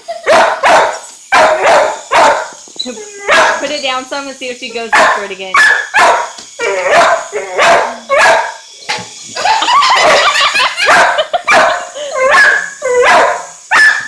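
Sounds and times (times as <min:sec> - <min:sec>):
dog barking excitedly: 0:00.2 - 0:02.5, 0:03.3 - 0:03.6, 0:04.9 - 0:08.6, 0:09.9 - 0:14.0.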